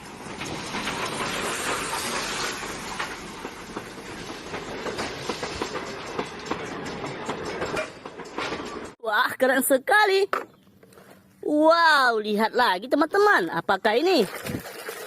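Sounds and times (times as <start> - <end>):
train rushing noise with rapid clicks: 0.0 - 9.0.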